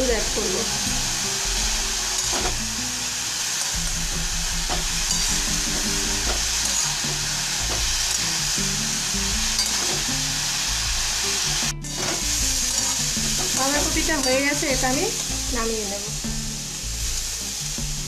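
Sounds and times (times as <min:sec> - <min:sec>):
cabbage sizzling in oil: 0:00.0 - 0:18.0
metal spatula stirring: 0:05.1 - 0:05.4.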